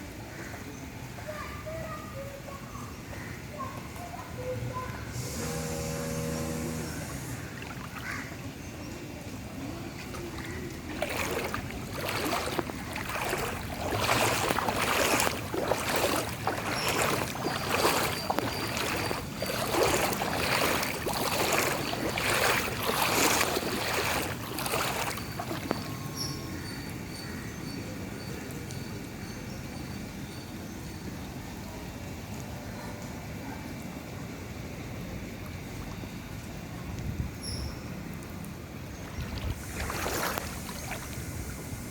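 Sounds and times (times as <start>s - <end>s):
steady background hum: 0.0s - 27.6s
floodwater splashing and sloshing: 5.2s - 27.5s, 34.6s - 37.2s, 37.9s - 41.9s.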